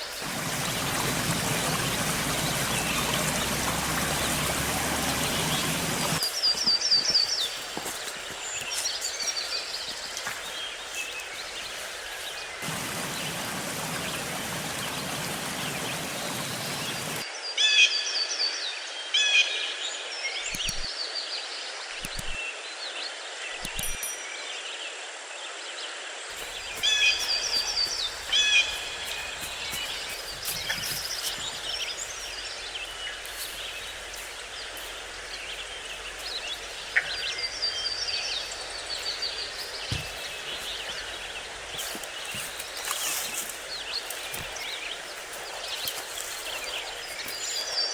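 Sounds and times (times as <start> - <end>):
songbirds chirping: 0.0 - 17.2, 26.3 - 47.9
steady rushing noise: 0.0 - 17.2, 26.3 - 47.8
outdoor background noise: 0.0 - 17.4, 26.0 - 47.9
sharp clicks: 20.5 - 20.9, 22.0 - 22.4.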